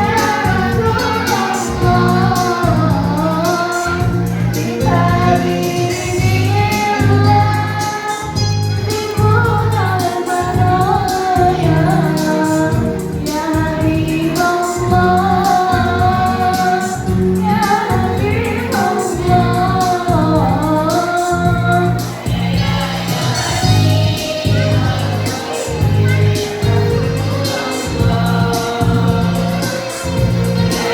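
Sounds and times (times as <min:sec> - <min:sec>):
choir singing: 0:00.0 - 0:30.9
instrumental accompaniment: 0:00.0 - 0:30.9
low pulsing bass line: 0:17.1 - 0:25.2.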